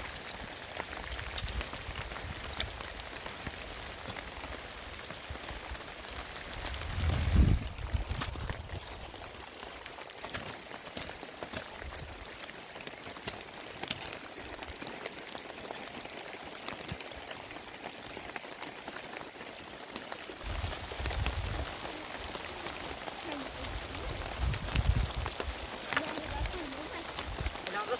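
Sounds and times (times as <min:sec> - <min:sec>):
heavy rain: 0:00.0 - 0:27.9
raindrops ticking on surfaces: 0:00.0 - 0:27.9.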